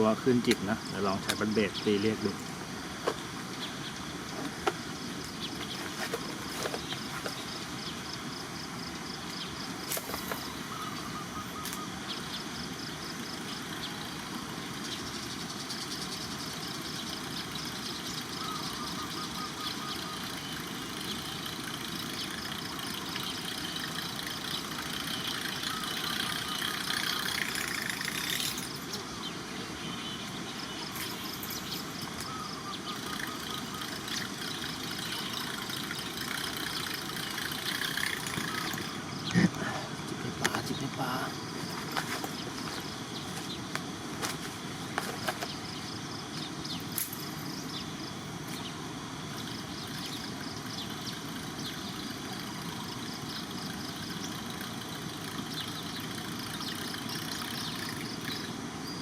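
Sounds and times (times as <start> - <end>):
fishing line being reeled in: 18.6 - 28.9, 32.8 - 39.0, 49.5 - 58.6
lure blade buzzing on water: 18.6 - 28.9, 32.8 - 39.2, 49.4 - 58.6.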